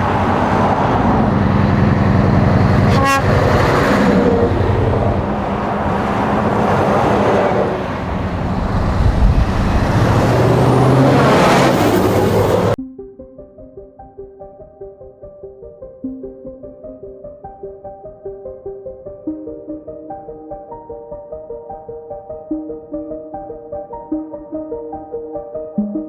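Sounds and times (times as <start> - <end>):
diesel truck engine revving: 0.0 - 12.8.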